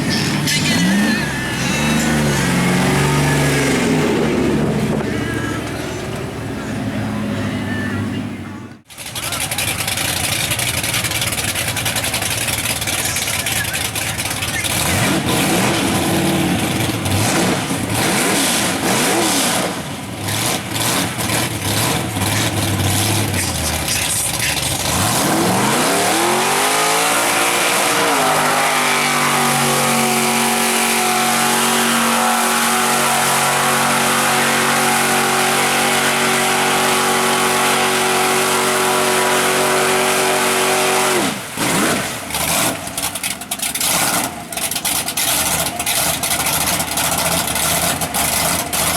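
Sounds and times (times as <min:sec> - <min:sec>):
truck engine revving: 0:00.0 - 0:48.9.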